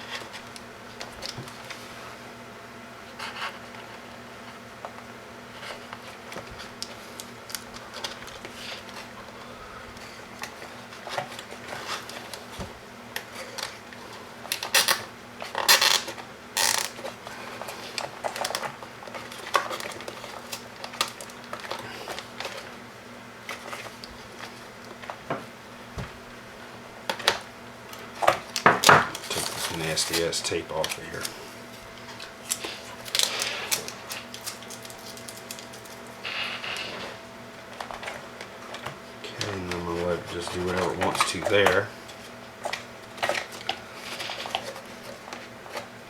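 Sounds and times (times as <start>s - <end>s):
steady low hum: 0.0s - 46.0s
plastic clicks and rustles: 32.0s - 36.1s.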